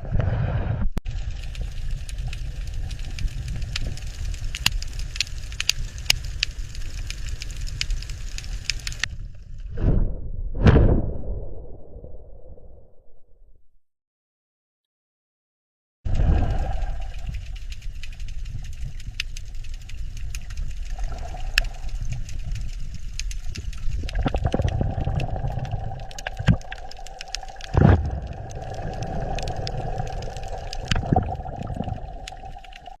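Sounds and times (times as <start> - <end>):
loud thud: 9.8 - 11.4.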